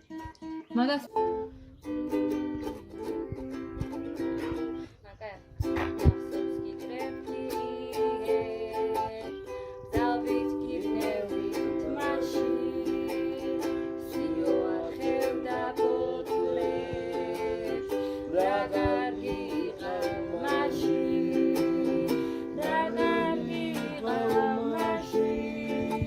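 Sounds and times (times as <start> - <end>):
plucked string instrument: 0.0 - 5.0, 5.6 - 26.0
person singing: 6.3 - 26.0.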